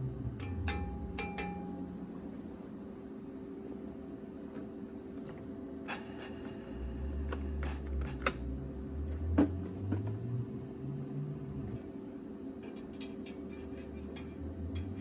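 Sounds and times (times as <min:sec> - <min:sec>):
hiss: 0:05.9 - 0:08.3.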